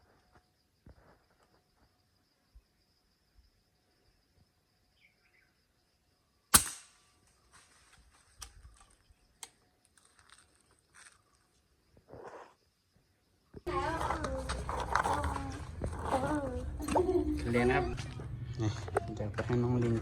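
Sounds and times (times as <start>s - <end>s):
faint insect buzz: 0.0s - 6.5s
sharp gunshot: 6.5s - 7.0s
crackling and rustling: 13.6s - 18.4s.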